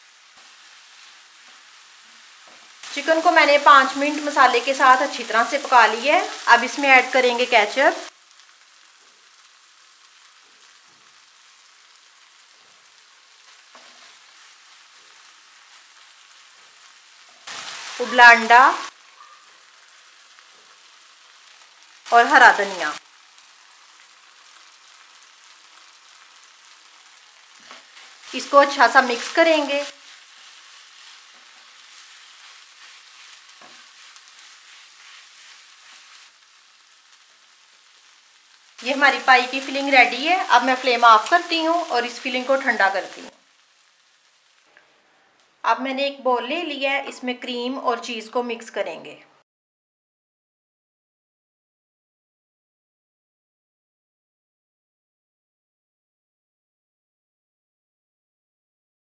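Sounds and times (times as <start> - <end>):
chicken and onion sizzling: 0.0 - 48.8
spatula scraping pan: 27.5 - 36.6.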